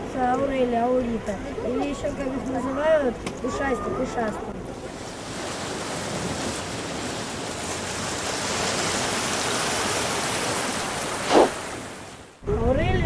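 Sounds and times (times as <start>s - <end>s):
sea surf washing on shore: 4.8s - 13.0s.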